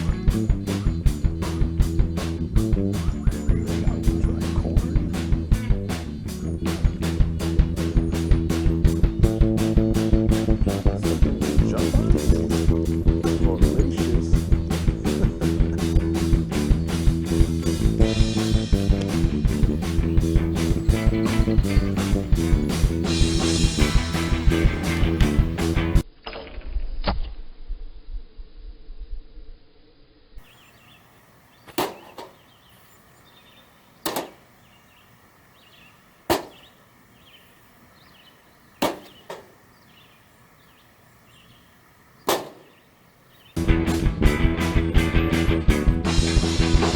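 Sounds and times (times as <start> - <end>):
rock music: 0.0 - 26.0, 43.6 - 46.9.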